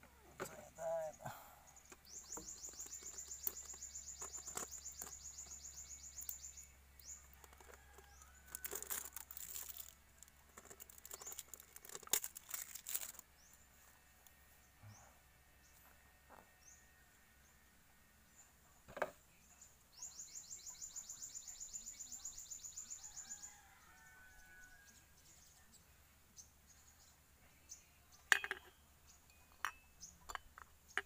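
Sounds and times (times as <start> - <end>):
faint bird chirps: 0.1 - 8.6, 19.3 - 26.0.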